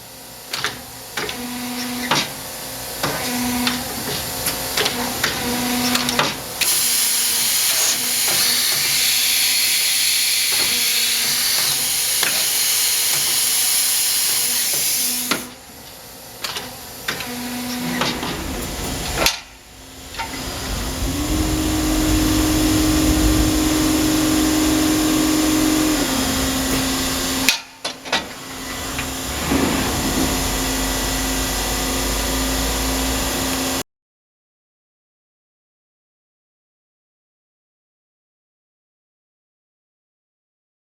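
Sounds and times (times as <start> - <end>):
lathe hiss: 6.6 - 15.6, 17.7 - 27.6
motor hum: 16.7 - 27.5.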